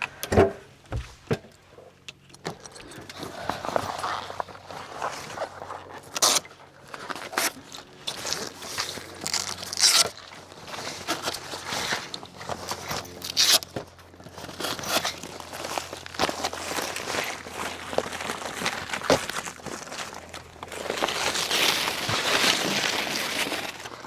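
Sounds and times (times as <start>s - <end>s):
camp gear knocking and scraping: 0.2s - 6.0s.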